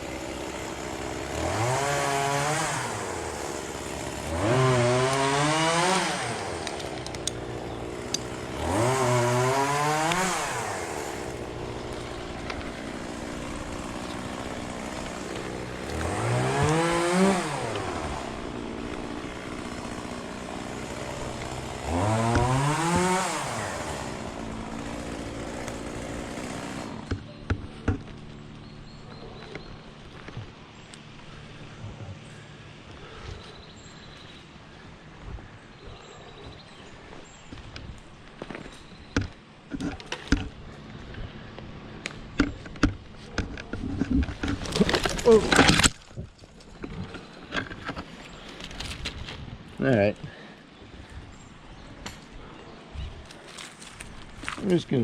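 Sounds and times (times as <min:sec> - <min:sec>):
chainsaw idling and revving: 0:00.0 - 0:27.3, 0:39.2 - 0:46.1.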